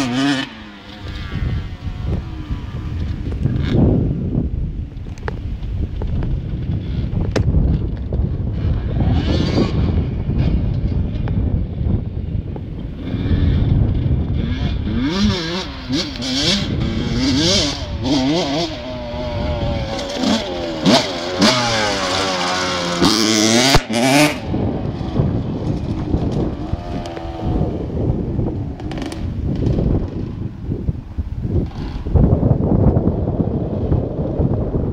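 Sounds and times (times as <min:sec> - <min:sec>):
motocross bike engine revving: 0:00.0 - 0:04.2, 0:08.5 - 0:11.2, 0:12.8 - 0:30.5, 0:31.5 - 0:34.2.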